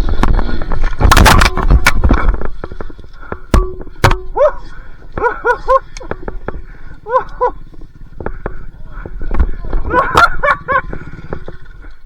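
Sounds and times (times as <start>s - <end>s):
dog barking: 4.4s - 4.6s, 5.2s - 5.8s, 7.0s - 7.6s, 9.9s - 10.8s.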